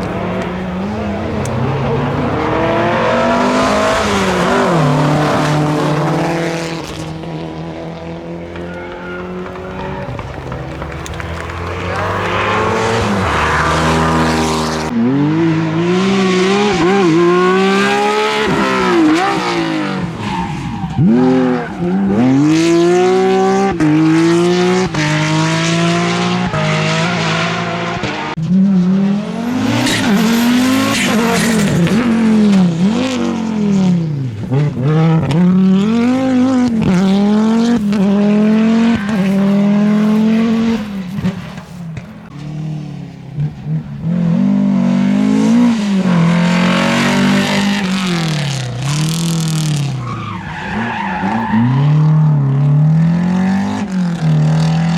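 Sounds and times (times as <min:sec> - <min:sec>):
rally car engines revving: 0:00.0 - 0:54.9.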